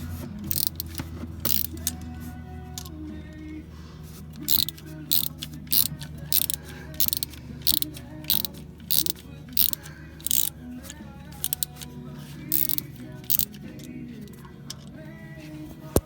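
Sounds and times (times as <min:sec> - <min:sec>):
ratchet clicking: 0:00.5 - 0:02.0, 0:04.3 - 0:14.9.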